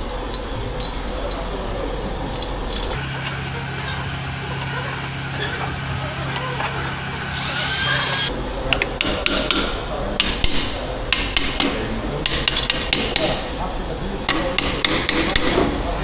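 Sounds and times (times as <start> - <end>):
short rising whine: 3.0 - 8.3.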